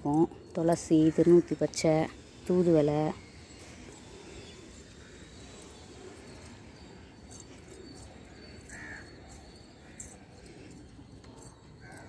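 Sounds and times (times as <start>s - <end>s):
birds calling faintly: 0.0s - 12.0s.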